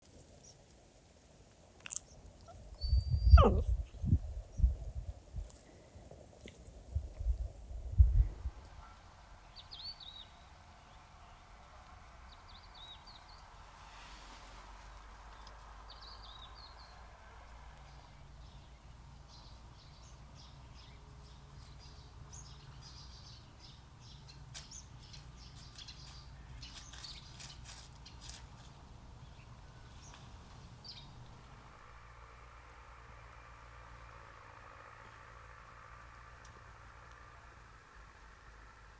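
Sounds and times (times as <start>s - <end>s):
small birds chirping: 0.0s - 0.7s, 8.7s - 32.3s
faint low rumble: 0.0s - 38.9s.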